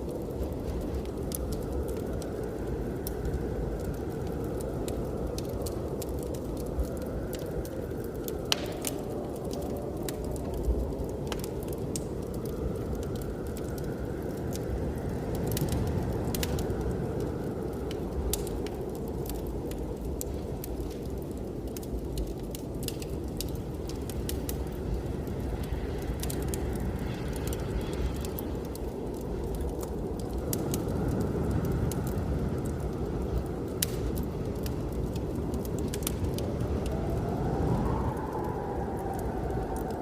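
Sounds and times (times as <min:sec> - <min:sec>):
blizzard wind roaring: 0:00.0 - 0:40.0
wood fire crackling: 0:00.0 - 0:40.0.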